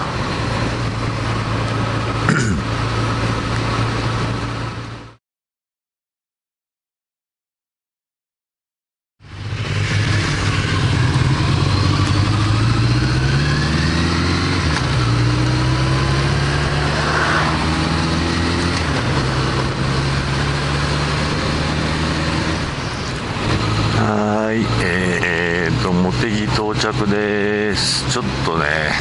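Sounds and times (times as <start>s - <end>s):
motorcycle engine revving: 9.2s - 26.5s.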